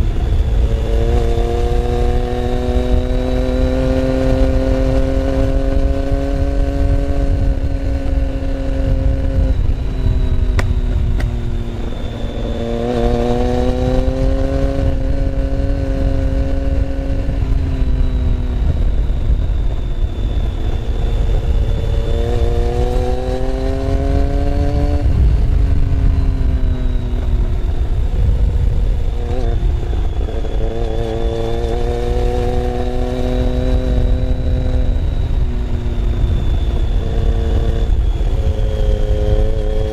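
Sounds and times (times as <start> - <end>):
motorcycle engine accelerating: 0.0 - 39.9
heavy low rumble: 23.7 - 30.8.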